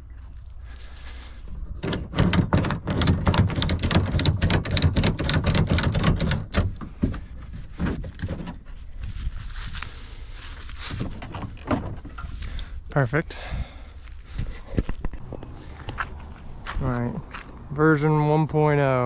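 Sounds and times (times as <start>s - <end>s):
mechanical clicks and rattles: 1.8s - 6.7s.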